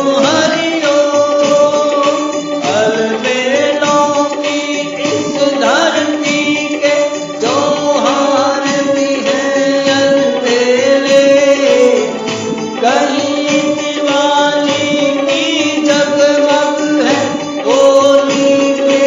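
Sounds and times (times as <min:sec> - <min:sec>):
instrumental accompaniment: 0:00.0 - 0:19.0
person singing: 0:00.0 - 0:19.0.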